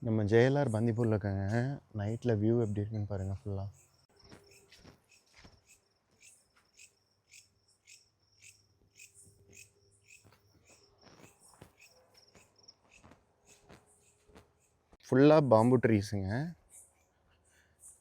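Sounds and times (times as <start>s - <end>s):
crickets trilling and chirping: 0.5s - 14.8s.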